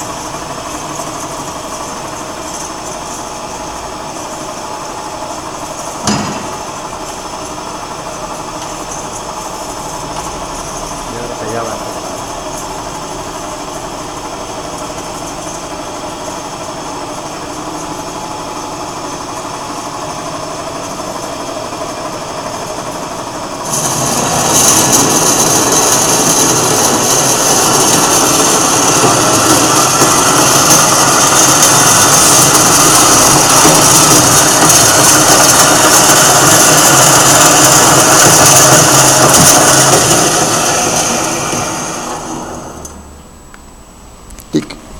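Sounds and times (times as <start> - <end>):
loud grinding with high hiss: 0.0 - 21.2, 22.4 - 42.9
band saw humming: 22.6 - 43.1.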